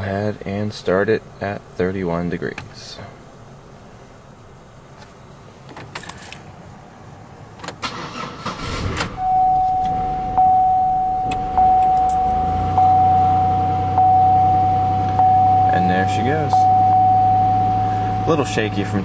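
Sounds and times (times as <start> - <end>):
car engine cranking and idling: 4.2 - 19.0
car warning chime dinging: 9.2 - 19.0.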